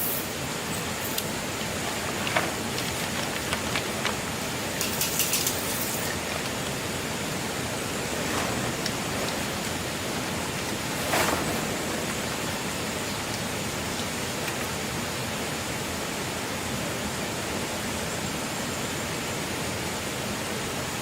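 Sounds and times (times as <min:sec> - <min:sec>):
steady hiss of noise: 0:00.0 - 0:21.0.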